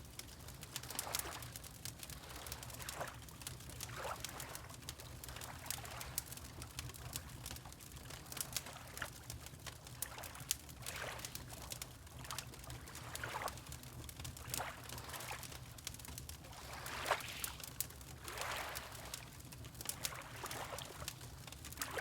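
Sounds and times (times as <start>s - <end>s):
wood fire crackling and popping: 0.0s - 16.5s, 19.2s - 22.0s
water lapping: 16.5s - 17.6s, 18.2s - 19.3s.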